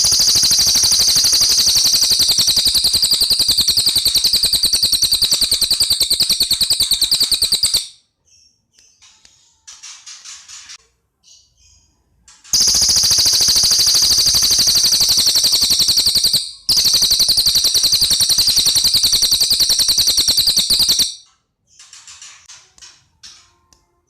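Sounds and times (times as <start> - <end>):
bird trilling fast high notes: 0.0 - 7.9, 12.6 - 21.2
soft bird chirps: 0.0 - 9.7, 11.2 - 22.0.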